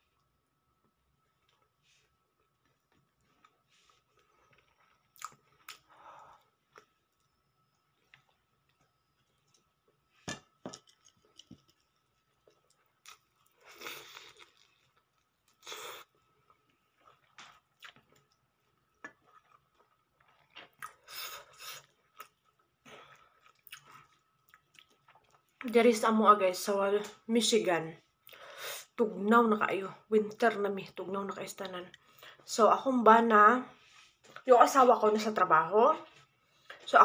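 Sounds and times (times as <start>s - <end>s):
chewing and biting food: 2.4s - 10.0s, 10.8s - 21.1s, 21.7s - 25.6s
wet mouth clicks: 5.2s - 5.8s.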